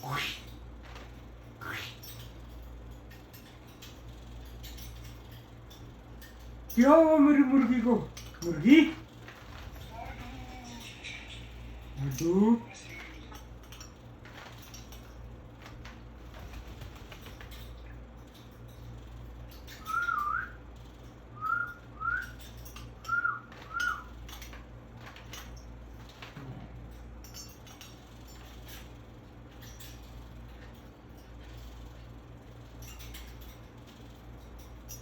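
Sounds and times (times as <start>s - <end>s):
steady low hum: 0.0s - 35.0s
parrot whistling: 19.8s - 20.6s, 21.4s - 22.4s, 23.0s - 24.1s.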